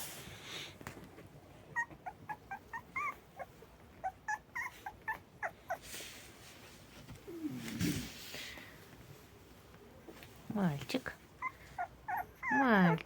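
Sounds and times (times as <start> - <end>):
puppies whimpering: 1.8 - 5.8, 11.4 - 13.0.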